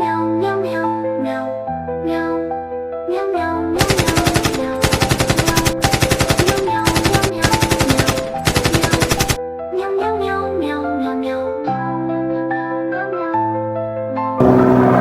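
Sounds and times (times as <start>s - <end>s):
machine-gun fire: 3.8s - 9.4s.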